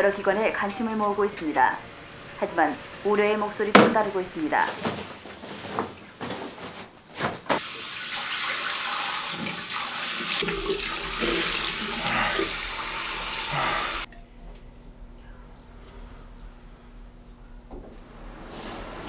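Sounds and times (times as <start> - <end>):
tap running: 3.7 - 4.0, 8.5 - 14.1.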